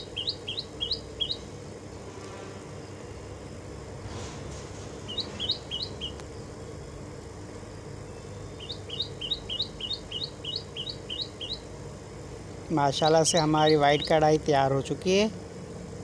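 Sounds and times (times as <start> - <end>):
small bird chirping: 0.0 - 1.5, 5.0 - 6.6, 8.0 - 11.7, 13.0 - 14.3
steady low hum: 0.0 - 16.0.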